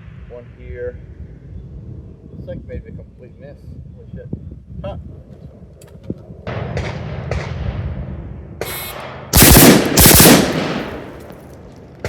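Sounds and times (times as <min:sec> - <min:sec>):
close gunshots ringing out: 0:06.5 - 0:07.7, 0:08.6 - 0:12.0.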